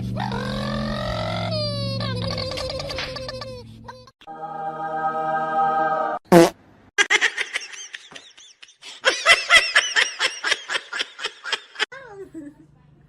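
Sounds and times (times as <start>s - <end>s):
person laughing hard: 7.0s - 11.9s.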